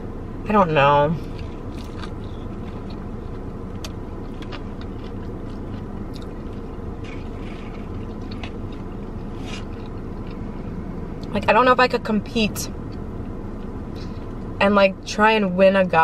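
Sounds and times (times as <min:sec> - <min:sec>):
low hum in car cabin: 0:00.0 - 0:16.0
person chewing: 0:01.2 - 0:11.3.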